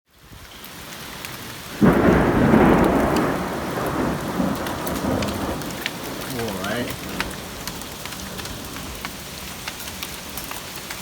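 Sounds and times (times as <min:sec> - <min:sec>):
steady rain: 0:00.1 - 0:11.0
close thunderclap rumbling: 0:01.7 - 0:09.1.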